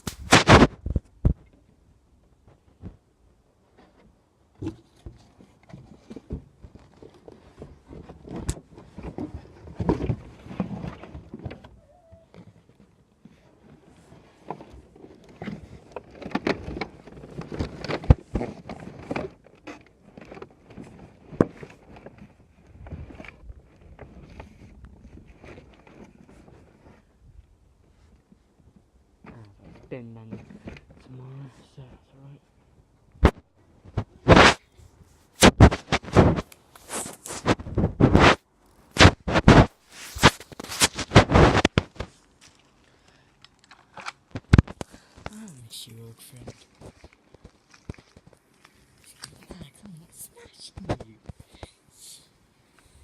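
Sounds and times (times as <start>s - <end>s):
rustling handling noise: 32.8s - 53.0s.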